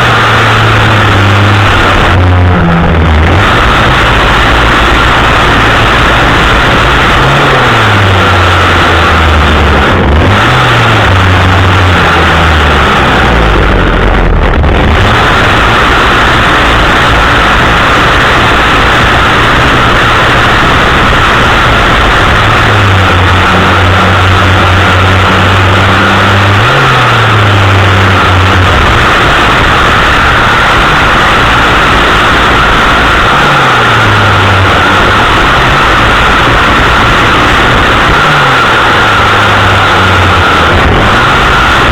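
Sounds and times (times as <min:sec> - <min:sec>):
chainsaw engine droning: 0:00.0 - 0:41.9.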